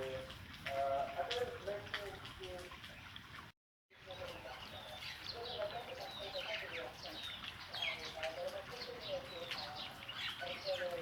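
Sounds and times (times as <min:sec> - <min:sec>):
small birds chirping: 0:04.0 - 0:11.0.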